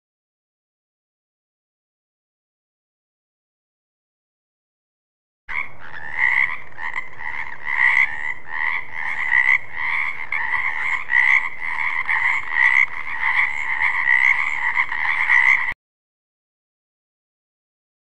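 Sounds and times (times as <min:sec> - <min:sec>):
frog croaking: 0:05.5 - 0:15.8.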